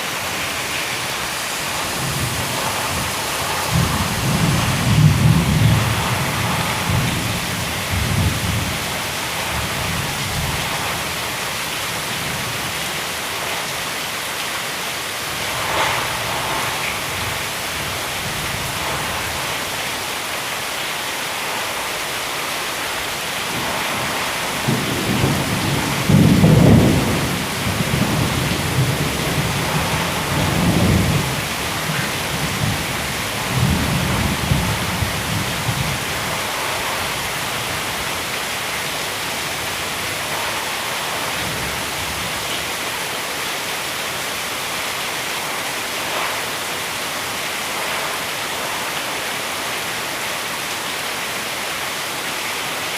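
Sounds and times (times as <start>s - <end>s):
heavy rain falling: 0.0s - 52.9s
thunder rumbling: 0.3s - 12.7s, 15.3s - 19.8s, 23.4s - 38.7s.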